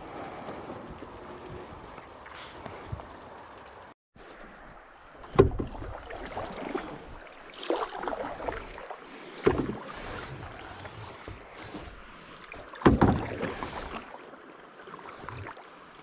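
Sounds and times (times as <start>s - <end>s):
paddle splashing water: 0.0s - 16.0s
outdoor hiss: 2.2s - 3.9s.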